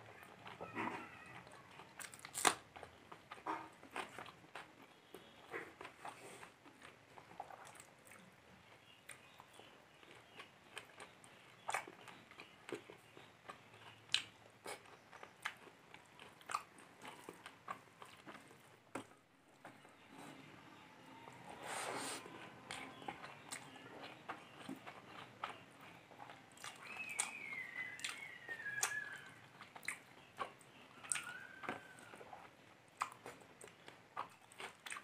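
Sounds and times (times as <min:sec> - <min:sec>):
chewing and wet mouth clicks: 0:05.6 - 0:19.1, 0:22.6 - 0:35.0.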